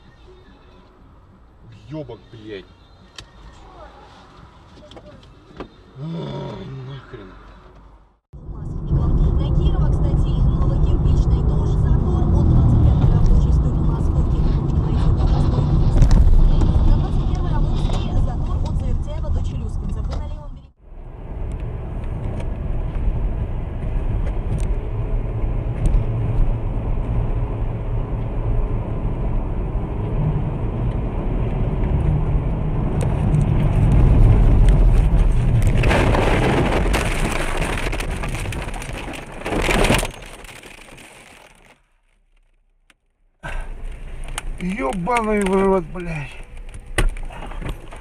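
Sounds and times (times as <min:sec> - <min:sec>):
engine and road rumble: 0:00.0 - 0:48.0
loud harsh crash: 0:35.4 - 0:40.5.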